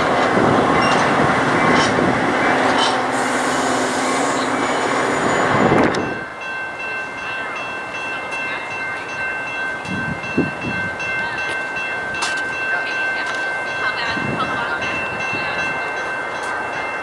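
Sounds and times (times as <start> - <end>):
train rumbling past: 0.0 - 17.0
high-pitched squeal: 2.7 - 6.2.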